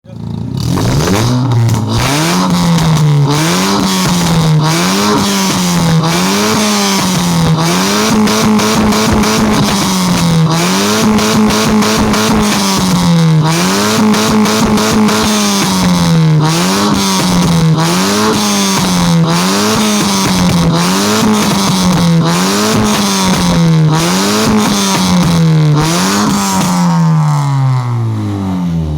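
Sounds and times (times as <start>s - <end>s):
car engine revving: 0.0s - 28.9s.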